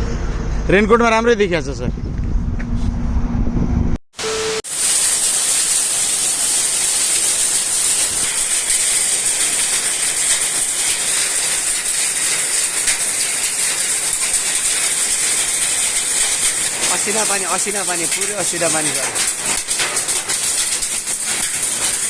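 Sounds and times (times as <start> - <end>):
motorcycle road noise: 0.0 - 4.0
heavy rain and hail: 4.7 - 22.0.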